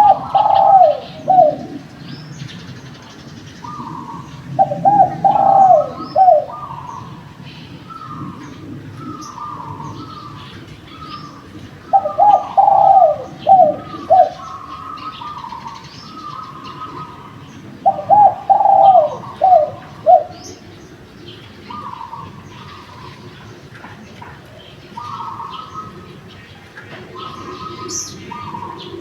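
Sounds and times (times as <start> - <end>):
dove cooing: 0.0 - 29.0
small birds chirping: 0.0 - 29.0
soft steady dove cooing: 0.0 - 29.0.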